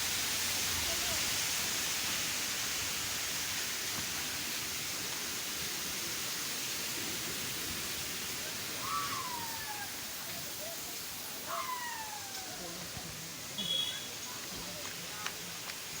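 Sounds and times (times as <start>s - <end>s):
waterfall rushing: 0.0s - 16.0s
falling cry: 11.5s - 12.6s.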